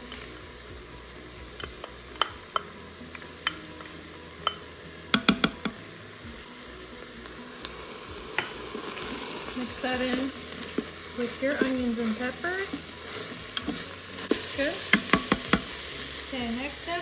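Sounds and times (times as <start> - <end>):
vegetables sizzling in a pot: 0.0 - 17.0
spatula tapping: 1.6 - 2.8, 3.4 - 5.8, 11.5 - 15.8.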